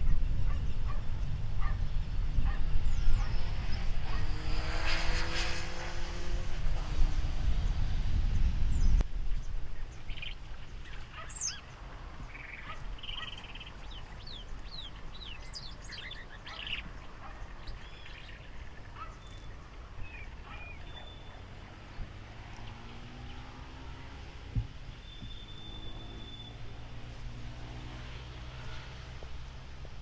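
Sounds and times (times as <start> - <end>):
steady low rumble: 0.0 - 4.6, 5.9 - 11.0
birds chirping and whistling: 0.0 - 5.4, 6.8 - 27.0.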